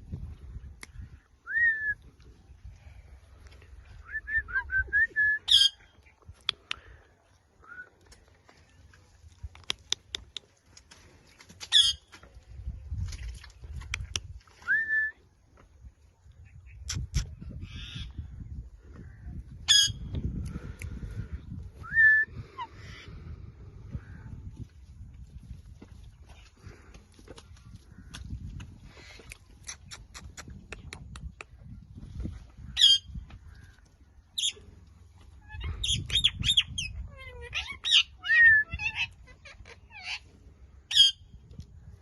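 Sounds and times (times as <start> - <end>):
parrot screeching: 37.1 - 40.2.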